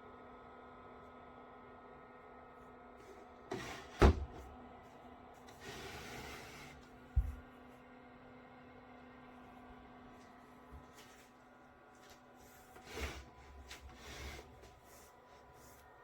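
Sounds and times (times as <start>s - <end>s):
fridge door swish: 3.5s - 4.4s
fridge door knocking shut: 4.0s - 4.4s.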